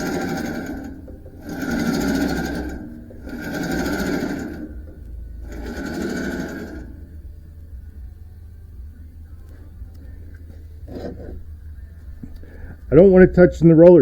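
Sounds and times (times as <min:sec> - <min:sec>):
sawmill machinery clatter and whine: 0:00.0 - 0:07.2.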